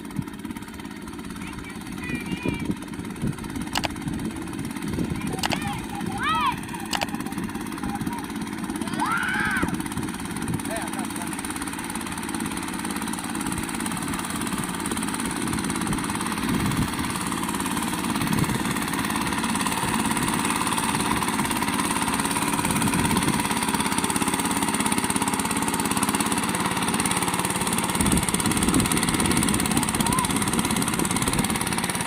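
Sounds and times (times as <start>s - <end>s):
small tractor engine running: 0.0s - 32.0s.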